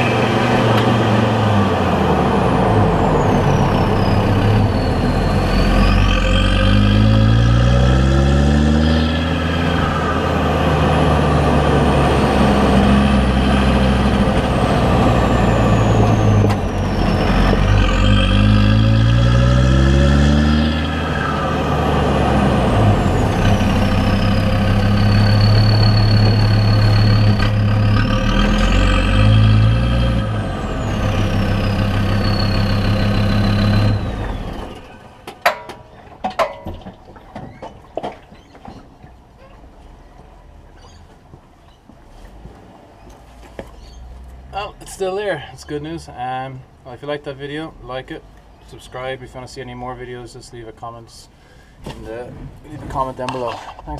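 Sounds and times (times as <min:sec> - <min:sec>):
diesel engine accelerating: 0:00.0 - 0:35.4.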